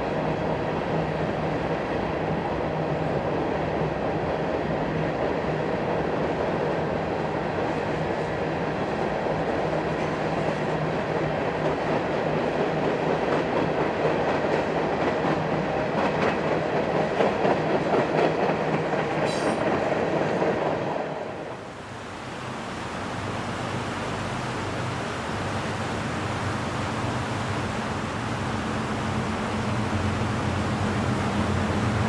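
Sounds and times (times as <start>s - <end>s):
train wheels rumbling on rail: 0.0s - 21.8s, 22.4s - 32.0s
clickety-clack of rail joints: 7.6s - 21.5s.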